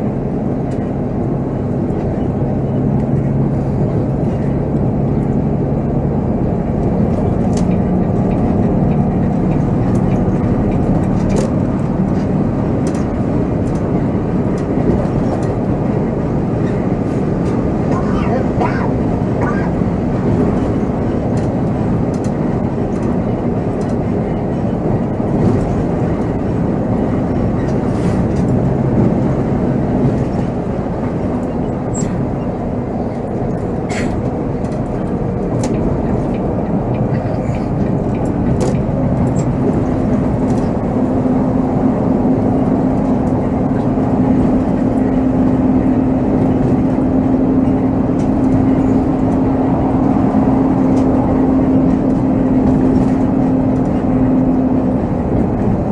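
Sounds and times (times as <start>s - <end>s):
diesel engine running: 0.0s - 55.9s
road noise: 0.0s - 55.9s.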